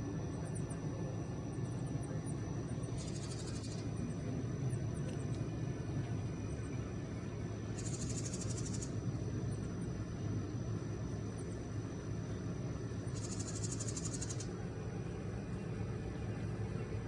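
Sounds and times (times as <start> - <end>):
steady low rumble: 0.0 - 17.0
wren scolding chatter: 2.9 - 4.1, 7.7 - 8.9, 13.0 - 14.6.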